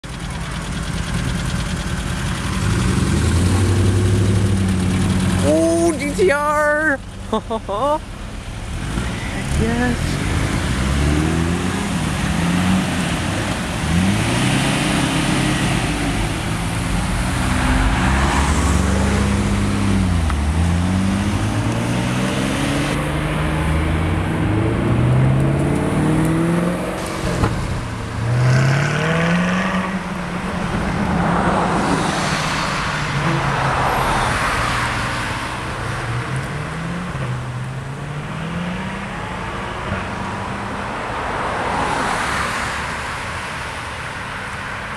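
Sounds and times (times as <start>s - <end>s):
car engine accelerating through gears: 8.4s - 40.7s.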